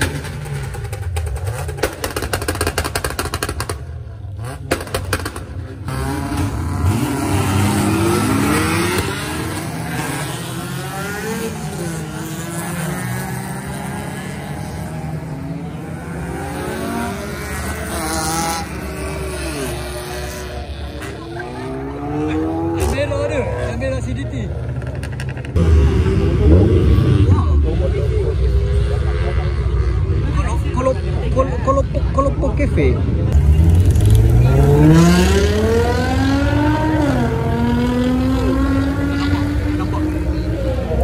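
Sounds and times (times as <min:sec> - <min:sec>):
exhaust pops and crackles: 0:00.0 - 0:04.1, 0:04.7 - 0:05.6
car engines revving: 0:00.0 - 0:41.0.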